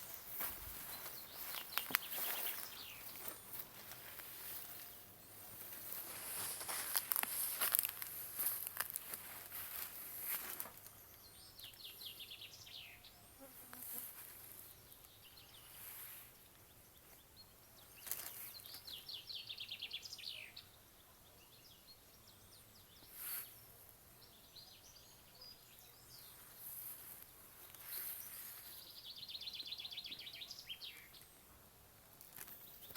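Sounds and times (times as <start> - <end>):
faint bird chirps: 0.0 - 6.8.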